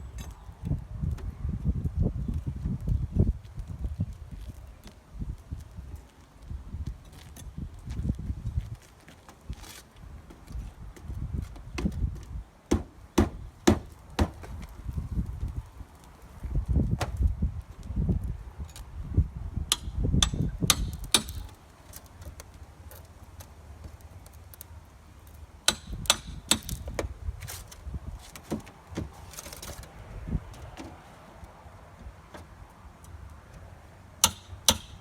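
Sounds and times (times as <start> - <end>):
carpentry knocks and taps on wood: 12.7 - 14.5.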